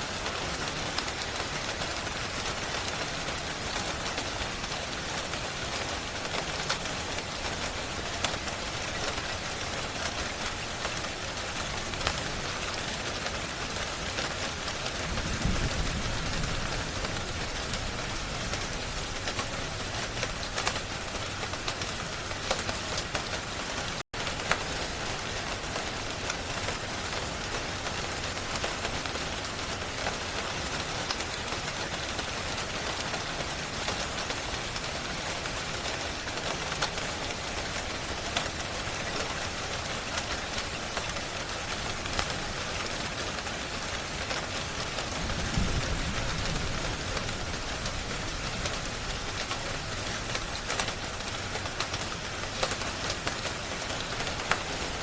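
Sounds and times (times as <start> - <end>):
steady rain hissing: 0.0 - 55.0
sharp crackles: 39.9 - 55.0.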